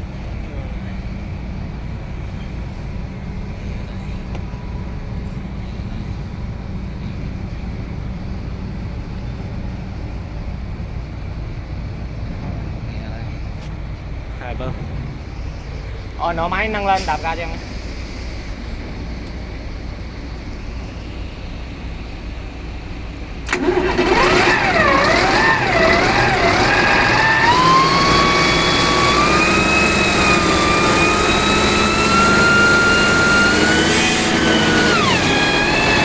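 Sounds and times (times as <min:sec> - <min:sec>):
hydraulic pump whining: 0:23.4 - 0:36.0.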